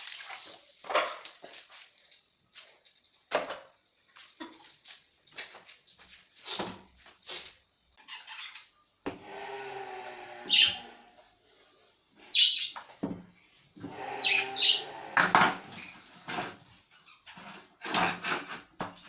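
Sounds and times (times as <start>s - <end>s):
budgerigars chirping: 10.5s - 10.9s, 12.3s - 12.8s, 14.1s - 15.0s
knocking and scraping: 15.1s - 19.0s.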